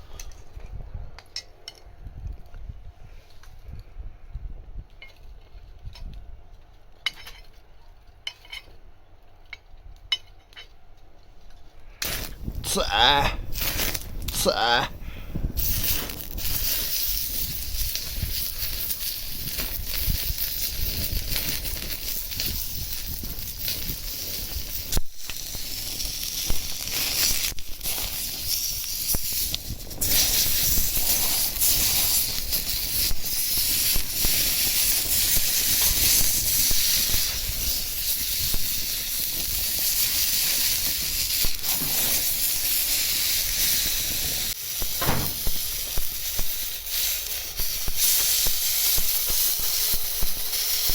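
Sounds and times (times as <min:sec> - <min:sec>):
meat sizzling on griddle: 0:15.4 - 0:50.9.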